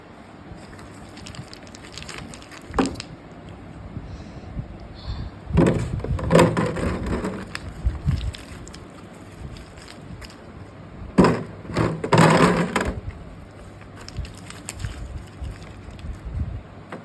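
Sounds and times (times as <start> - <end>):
packaging rustling: 0.6 - 3.2, 5.8 - 10.5, 11.2 - 16.4.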